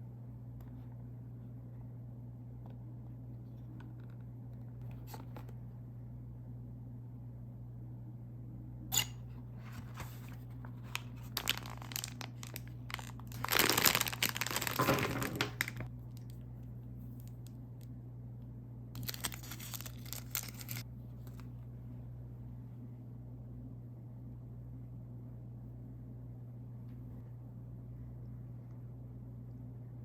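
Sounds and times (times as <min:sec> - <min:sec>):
plastic wrapper crinkling and tearing: 0:09.8 - 0:16.4, 0:19.0 - 0:21.5.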